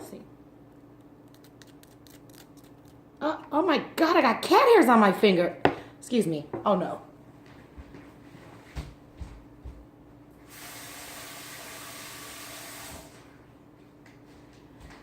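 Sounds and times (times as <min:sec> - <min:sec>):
water running from a tap: 0:10.5 - 0:13.2.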